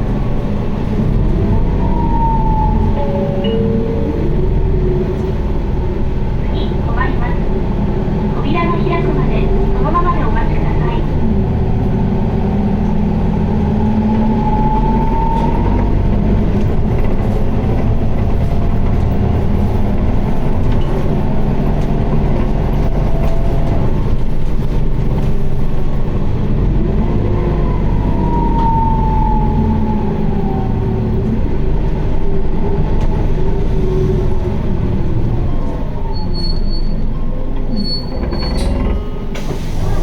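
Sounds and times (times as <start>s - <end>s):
bus diesel engine drone: 0.0s - 40.0s
high whine: 1.3s - 6.8s.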